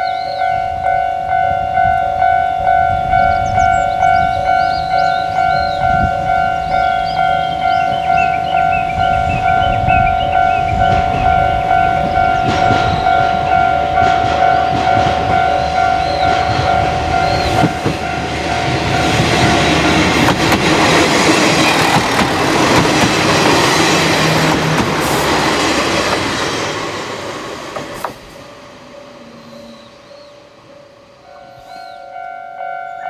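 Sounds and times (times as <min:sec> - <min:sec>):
level crossing bell ringing: 0:00.0 - 0:19.9, 0:30.8 - 0:33.0
diesel railcar passing: 0:00.0 - 0:33.0.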